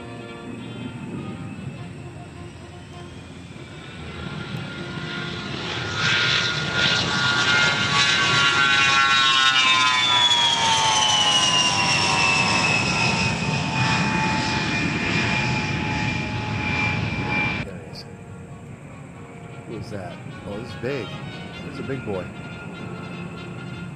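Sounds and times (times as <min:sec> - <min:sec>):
aircraft engine flying past: 0:00.0 - 0:23.9
high multi-tone whine: 0:00.0 - 0:23.9.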